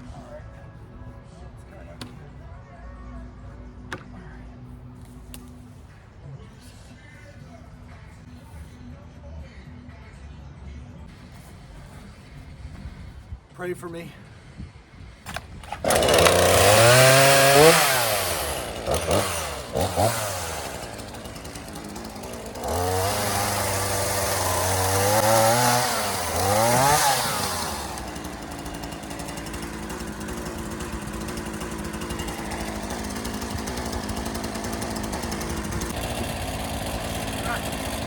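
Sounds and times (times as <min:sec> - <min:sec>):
chainsaw revving and idling: 0:15.3 - 0:38.0.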